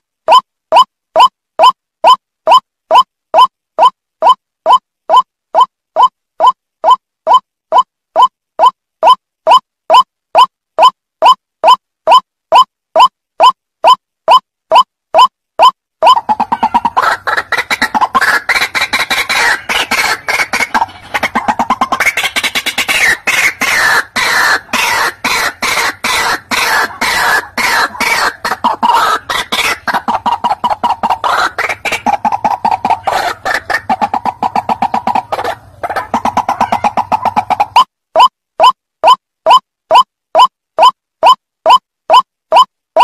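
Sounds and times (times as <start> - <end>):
waterhen harsh calls: 16.0 - 37.9.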